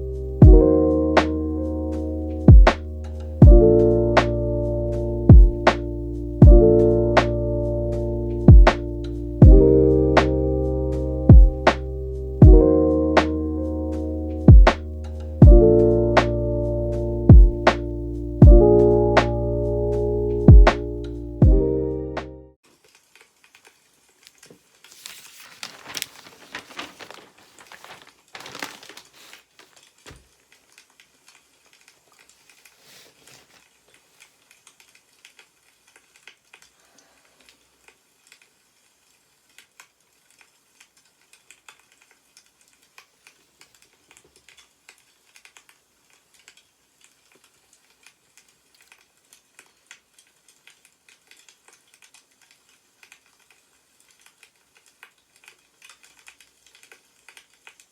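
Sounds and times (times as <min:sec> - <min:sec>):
faint ticks and crackles: 0:22.7 - 0:57.9
newspaper pages rustling: 0:24.3 - 0:30.4, 0:32.1 - 0:34.4.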